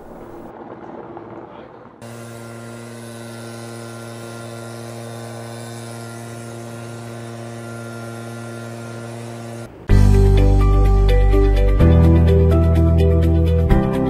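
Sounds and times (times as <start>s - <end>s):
helicopter running: 0.0s - 10.5s.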